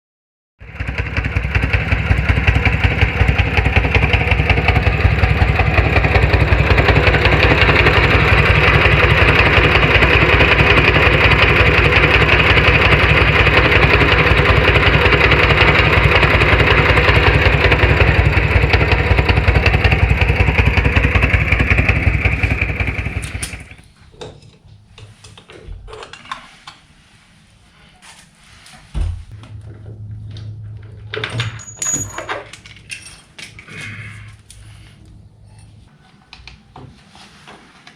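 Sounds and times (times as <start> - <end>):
motorcycle engine running: 0.6 - 23.8, 29.3 - 32.6.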